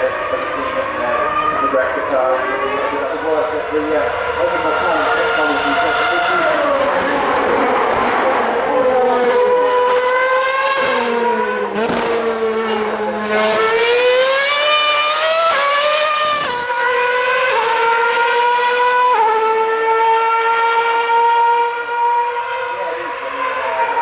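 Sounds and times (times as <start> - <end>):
lower engine note: 0.0 - 24.0
racing car engine at high revs: 0.0 - 24.0.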